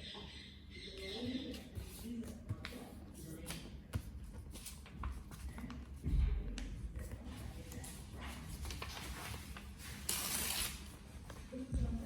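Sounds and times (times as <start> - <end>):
paper rustling and folding: 1.5 - 12.0.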